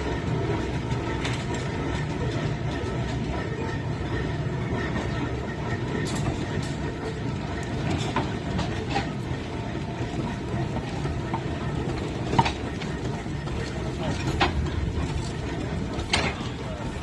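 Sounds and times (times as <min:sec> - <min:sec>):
steam engine rumbling: 0:00.0 - 0:17.0.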